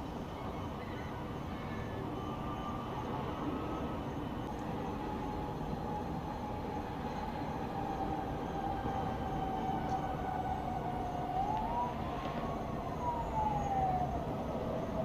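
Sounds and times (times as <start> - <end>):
emergency siren wailing: 5.0 - 15.0.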